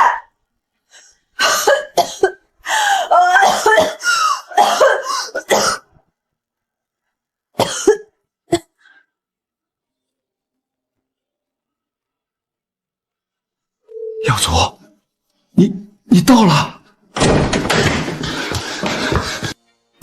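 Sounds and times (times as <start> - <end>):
person coughing: 3.4 - 5.9.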